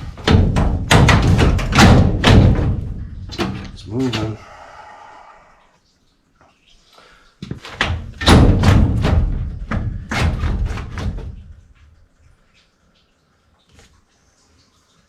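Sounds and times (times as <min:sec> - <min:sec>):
heavy knocks and thuds: 0:00.0 - 0:04.4, 0:07.4 - 0:11.7.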